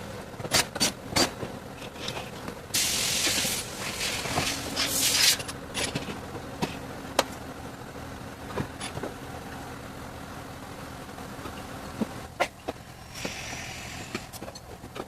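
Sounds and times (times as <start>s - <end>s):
hissing air burst: 2.8s - 5.3s, 13.0s - 14.3s.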